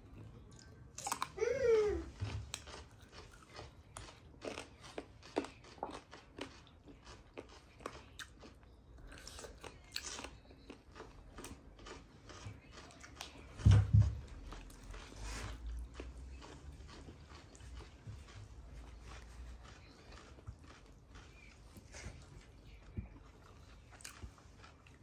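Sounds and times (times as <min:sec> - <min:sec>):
chewing and biting chicken: 0:00.1 - 0:25.0
wet mouth clicks and crunches: 0:00.6 - 0:01.4.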